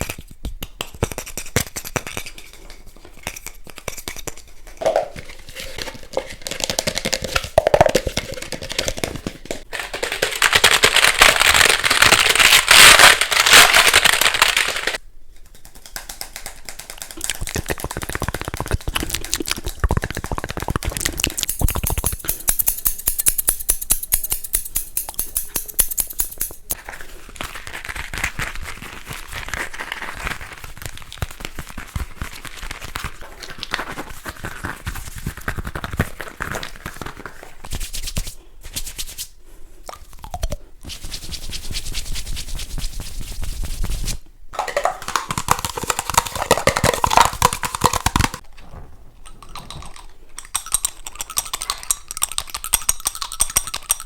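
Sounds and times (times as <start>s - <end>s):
fast tapping on objects: 0.5s - 26.8s, 43.4s - 48.4s
scratching on objects: 0.8s - 39.4s, 40.8s - 54.0s.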